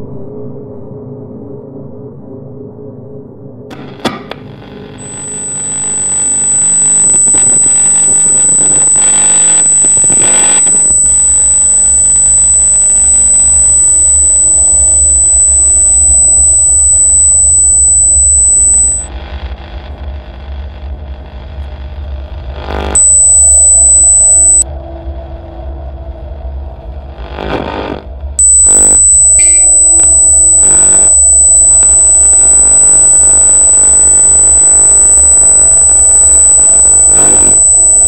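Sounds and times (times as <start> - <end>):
piercing high-pitched tone: 5.0 - 19.1, 22.6 - 24.7, 28.4 - 38.0.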